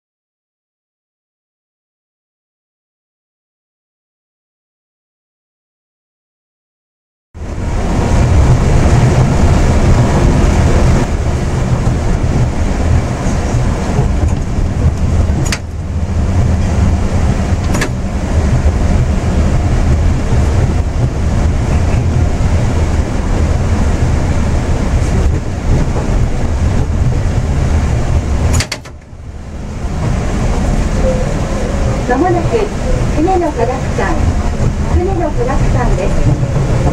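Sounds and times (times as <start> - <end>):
train tyres rumbling on guideway: 7.4 - 36.9
sharp clicks: 28.5 - 29.1.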